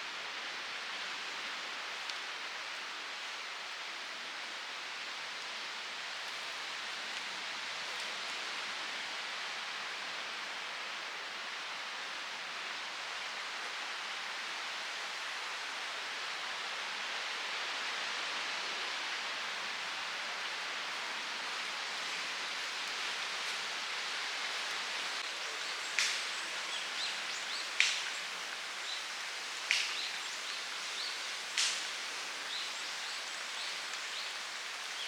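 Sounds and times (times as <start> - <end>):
faint ticks: 25.9 - 26.3, 27.8 - 28.2, 31.5 - 31.9.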